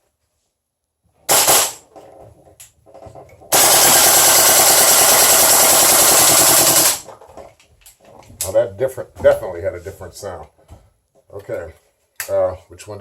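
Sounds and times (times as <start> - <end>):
airsoft rifle firing: 1.3 - 1.8, 3.5 - 7.1.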